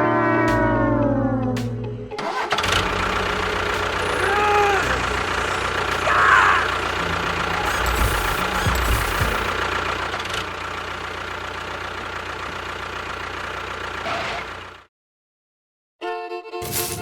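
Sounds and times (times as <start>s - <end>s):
constant whine: 0.0s - 14.0s
small motor running: 2.8s - 9.8s.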